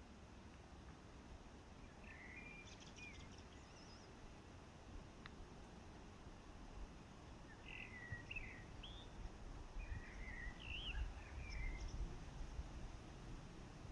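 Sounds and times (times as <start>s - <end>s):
songbird warbling: 7.5s - 9.2s, 9.8s - 12.0s.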